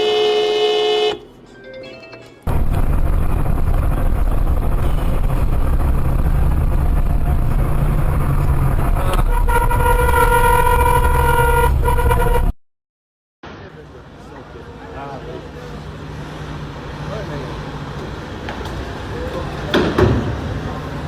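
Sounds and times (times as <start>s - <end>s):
vehicle horn blaring: 0.0s - 1.3s, 9.1s - 12.5s
vehicle road rumble: 2.4s - 12.5s, 13.5s - 21.0s.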